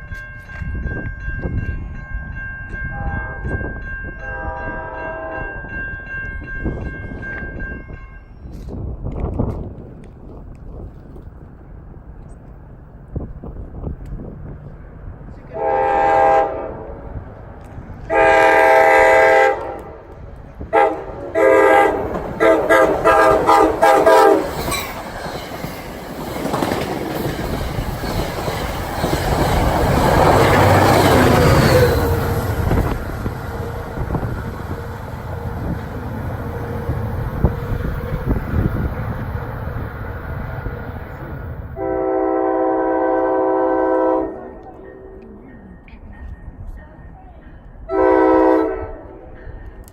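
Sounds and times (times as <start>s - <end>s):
train wheels rumbling on rail: 0.0s - 49.9s
train horn blasts: 2.9s - 5.7s, 15.5s - 17.1s, 18.0s - 20.1s, 20.7s - 24.8s, 30.2s - 35.8s, 41.8s - 45.2s, 47.9s - 49.2s.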